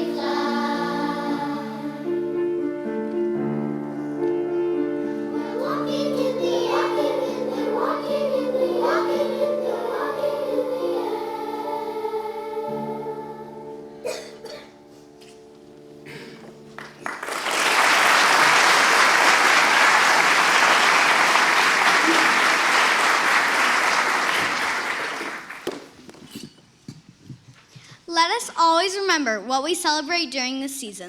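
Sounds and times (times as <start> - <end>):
children's choir singing: 0.0 - 14.6, 17.1 - 25.7
audience applause: 16.8 - 26.0.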